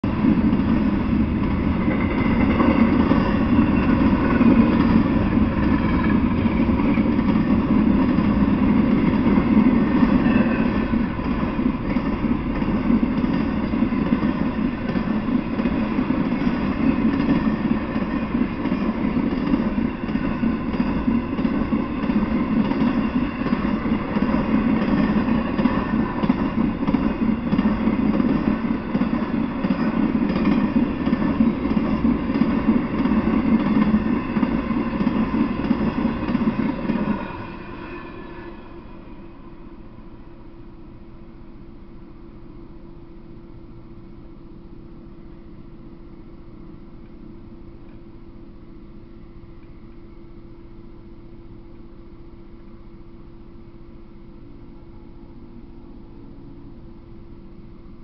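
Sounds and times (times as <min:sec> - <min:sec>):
steel wheels on rails: 0:00.0 - 0:40.4.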